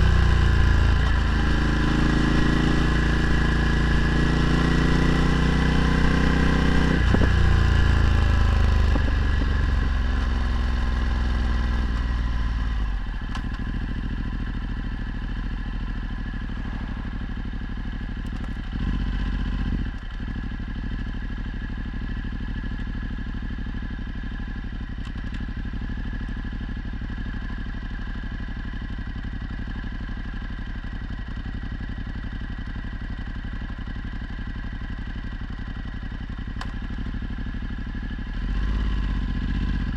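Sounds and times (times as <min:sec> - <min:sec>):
motorcycle engine revving: 0:00.0 - 0:21.0, 0:36.8 - 0:39.9.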